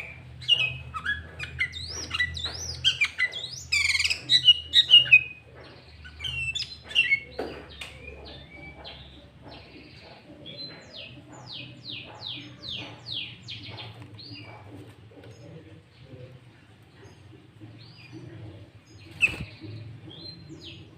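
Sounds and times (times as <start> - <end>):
bird chirping and whistling: 0.0 - 5.4.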